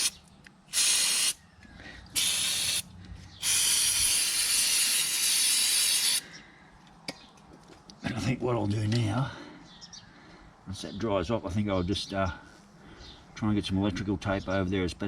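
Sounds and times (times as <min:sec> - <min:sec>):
aerosol can spraying: 0:00.7 - 0:01.4, 0:02.2 - 0:02.8, 0:03.4 - 0:06.2.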